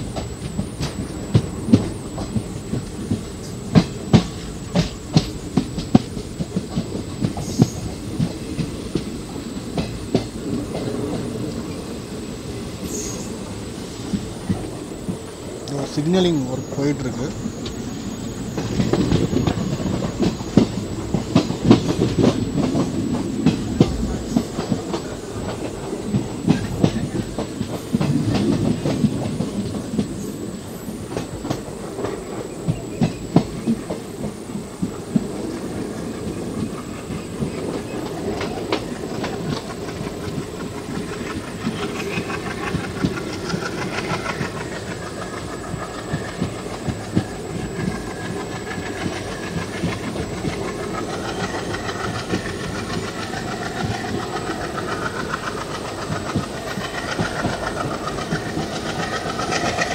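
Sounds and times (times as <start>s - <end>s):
train rumbling: 0.0s - 59.9s
wheels clacking over rail joints: 30.8s - 59.9s.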